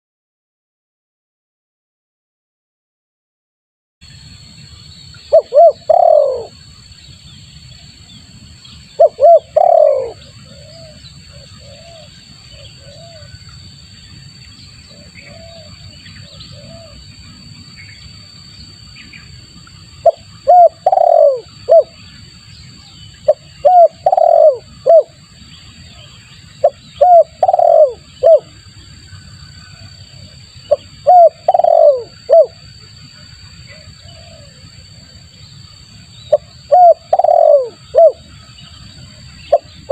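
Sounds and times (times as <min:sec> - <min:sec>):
dove cooing: 0:05.3 - 0:06.6, 0:09.0 - 0:13.4, 0:14.9 - 0:17.1, 0:20.0 - 0:22.0, 0:23.2 - 0:25.2, 0:26.0 - 0:28.6, 0:29.8 - 0:32.6, 0:33.4 - 0:34.7, 0:36.3 - 0:39.9.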